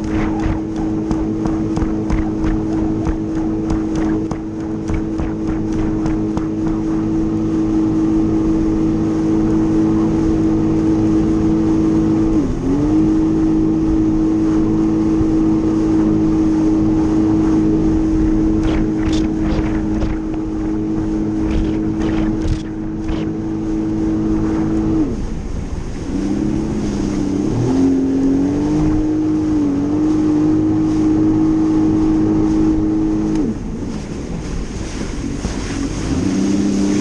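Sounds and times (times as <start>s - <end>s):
sharp slaps: 0.0s - 6.8s, 18.6s - 20.4s, 21.5s - 23.3s
jet ski engine running: 0.0s - 37.0s.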